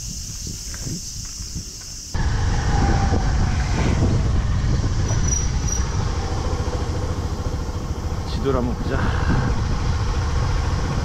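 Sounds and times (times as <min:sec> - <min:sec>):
wind rumble on microphone: 0:00.0 - 0:11.0
small motorcycle engine running: 0:04.0 - 0:11.0.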